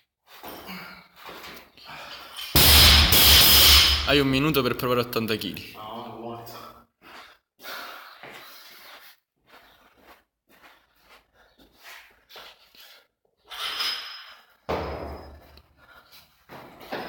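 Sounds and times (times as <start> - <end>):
heavy thud: 2.6 - 4.4.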